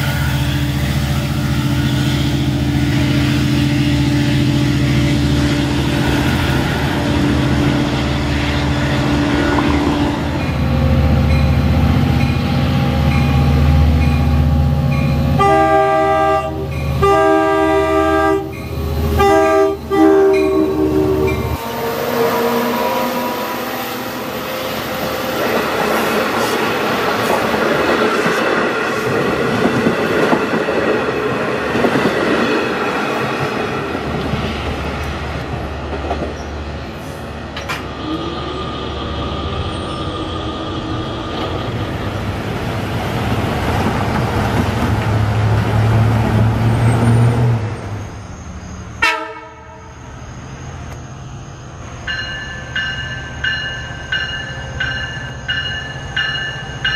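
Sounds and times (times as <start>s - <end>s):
train horn: 15.3s - 26.6s, 49.0s - 50.0s
train wheels clattering on rails: 25.0s - 36.6s.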